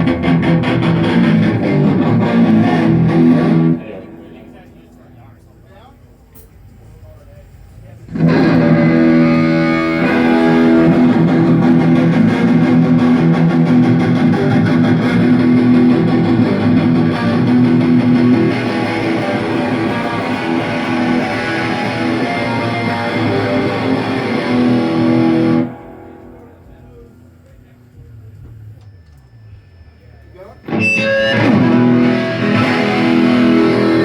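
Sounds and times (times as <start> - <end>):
electric guitar riff: 0.0 - 5.3, 8.1 - 27.2, 30.5 - 34.0.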